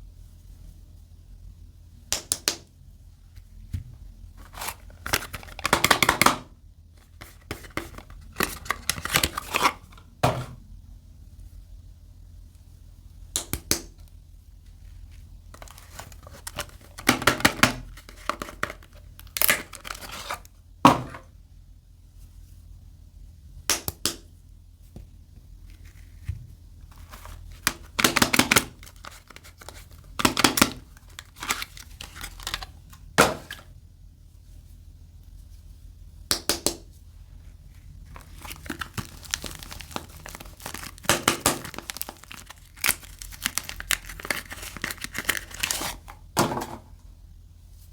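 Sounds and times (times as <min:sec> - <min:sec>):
packaging tearing and crinkling: 0:04.4 - 0:06.2, 0:07.2 - 0:10.0, 0:15.6 - 0:20.5, 0:26.9 - 0:33.6, 0:38.0 - 0:46.2.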